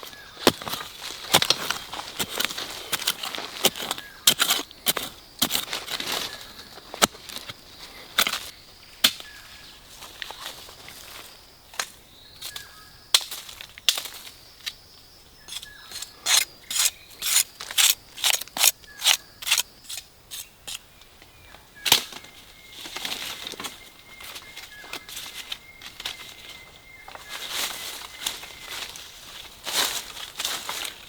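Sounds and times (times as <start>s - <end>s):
hand tool striking: 0.4s - 6.0s, 15.5s - 20.8s.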